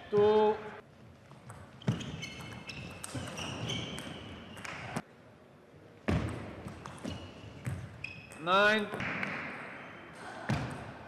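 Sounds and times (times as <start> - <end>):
shoes squeaking on floor: 0.0 - 5.0, 6.6 - 8.8.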